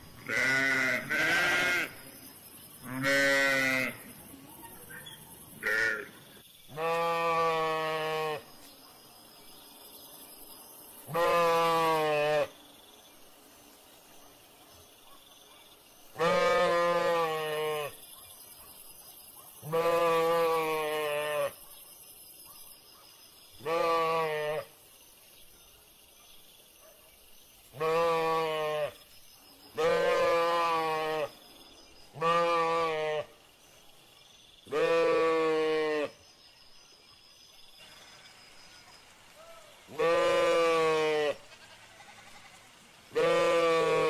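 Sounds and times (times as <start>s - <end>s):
sheep bleating: 0.2s - 2.0s, 2.9s - 4.0s, 5.6s - 6.1s, 6.8s - 8.4s, 11.1s - 12.5s, 16.2s - 18.0s, 19.7s - 21.5s, 23.6s - 24.7s, 27.8s - 29.0s, 32.2s - 33.3s, 34.7s - 36.1s, 40.0s - 42.6s, 43.2s - 44.0s.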